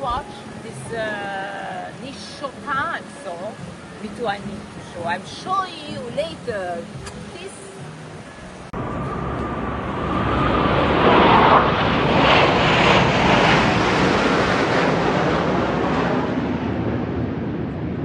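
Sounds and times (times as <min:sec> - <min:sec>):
military jet flying past: 0:08.3 - 0:18.0.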